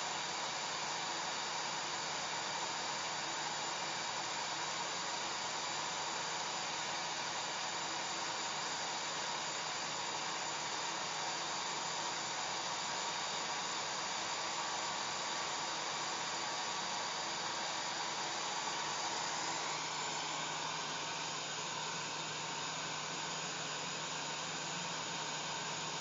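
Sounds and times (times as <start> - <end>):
hair dryer blowing air: 13.0 - 26.0.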